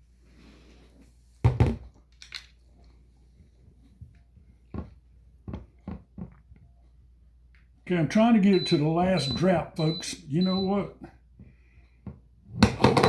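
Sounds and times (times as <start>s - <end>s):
blender jar knocks and scrapes: 12.6s - 13.0s.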